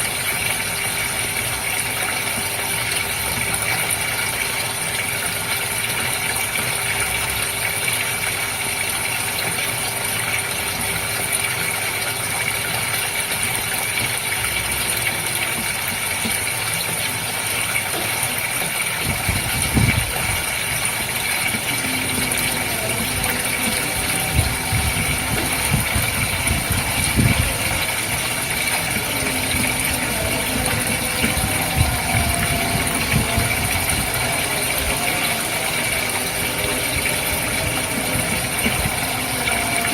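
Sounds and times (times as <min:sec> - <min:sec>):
pump machine hum: 0:00.0 - 0:39.9
water hissing: 0:15.5 - 0:39.9.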